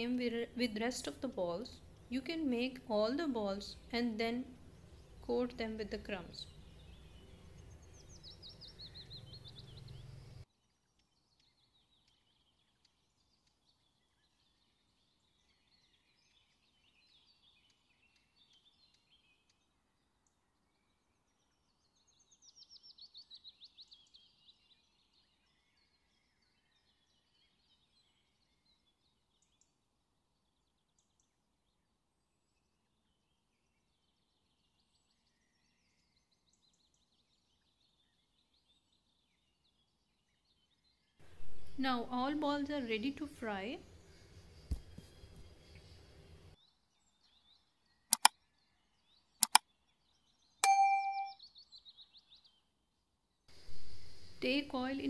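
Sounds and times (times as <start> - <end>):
birds chirping and trilling: 0.0 - 29.7.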